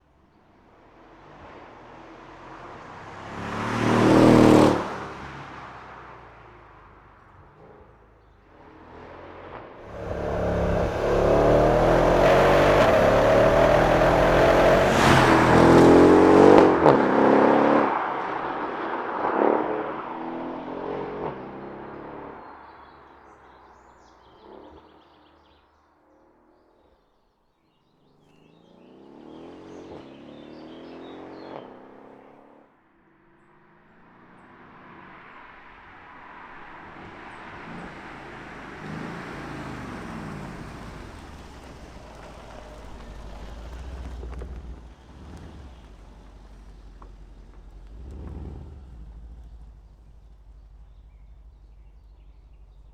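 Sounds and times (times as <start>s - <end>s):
car engine accelerating hard: 3.0s - 5.6s, 9.8s - 18.6s, 28.6s - 32.4s, 37.0s - 52.9s.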